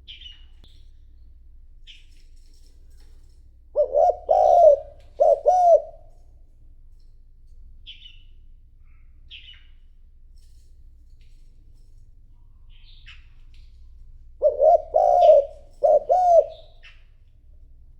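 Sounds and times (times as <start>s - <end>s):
small bird chirping: 0.0s - 2.2s, 7.8s - 10.0s, 12.5s - 17.2s
dove cooing: 3.8s - 6.1s, 14.4s - 17.0s.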